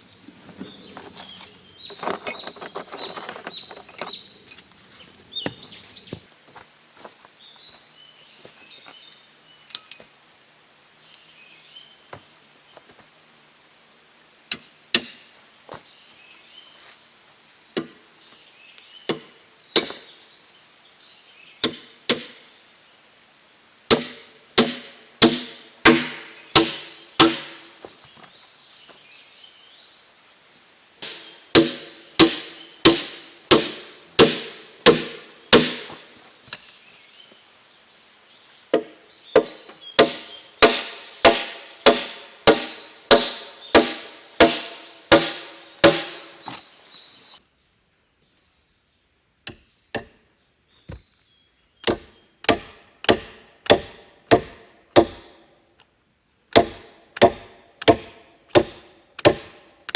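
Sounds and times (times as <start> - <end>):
tool striking wood: 1.9 - 4.2, 19.1 - 20.1, 23.9 - 27.7, 31.0 - 36.1, 38.7 - 46.6, 51.8 - 55.4, 56.6 - 59.7.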